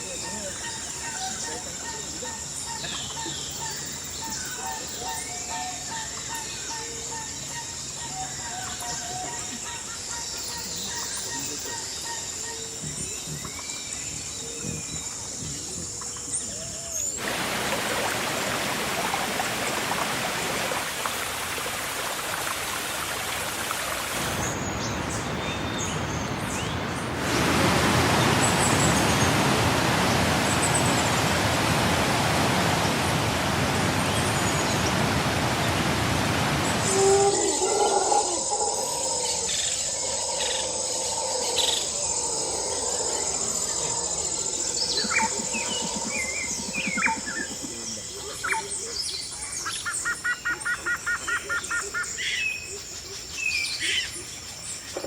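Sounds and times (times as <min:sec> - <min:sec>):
heavy rain falling: 0:17.2 - 0:25.4, 0:26.2 - 0:37.6.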